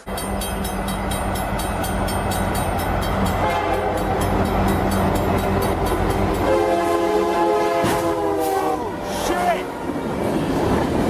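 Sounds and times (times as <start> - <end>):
train rumbling and clacking: 0.0 - 11.0
train horn blast: 3.4 - 4.2, 6.4 - 9.8.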